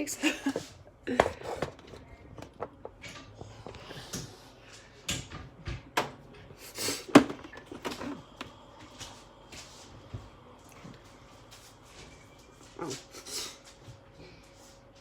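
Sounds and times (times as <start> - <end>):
kitchen items knocking and clattering: 0.3 - 4.3, 5.0 - 8.2.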